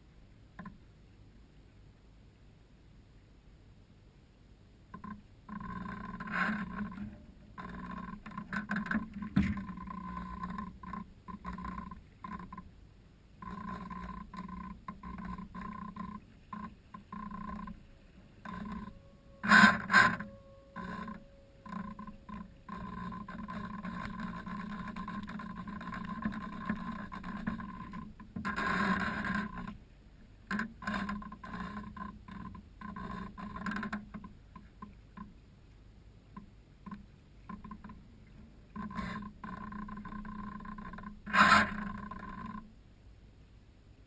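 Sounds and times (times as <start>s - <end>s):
model plane motor running: 13.5s - 29.6s.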